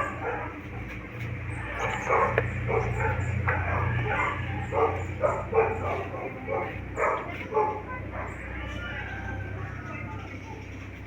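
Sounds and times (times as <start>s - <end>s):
dog barking and yipping: 0.0s - 0.9s, 1.5s - 8.5s.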